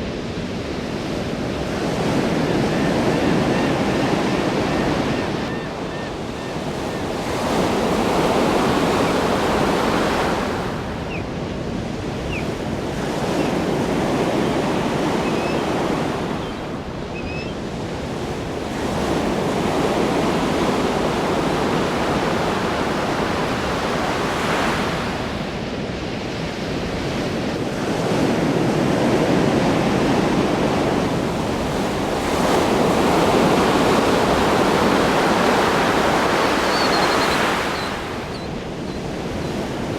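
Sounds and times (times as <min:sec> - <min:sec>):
waves breaking and washing in: 0:00.0 - 0:39.9.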